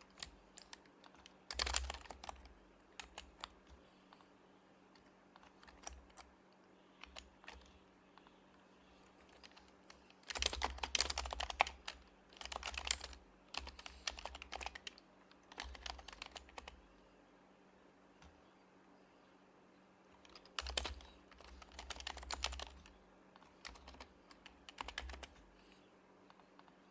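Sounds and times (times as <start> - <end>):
typing on a keyboard: 0.0 - 3.7, 5.0 - 6.3, 7.0 - 7.8, 9.3 - 16.8, 20.2 - 25.5.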